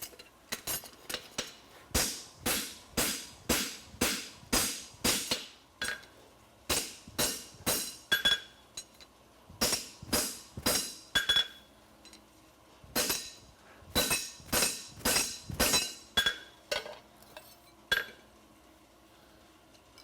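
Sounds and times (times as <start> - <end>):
hammer striking steel on anvil: 1.3 - 6.1, 6.7 - 8.9, 9.6 - 11.6, 13.0 - 16.5.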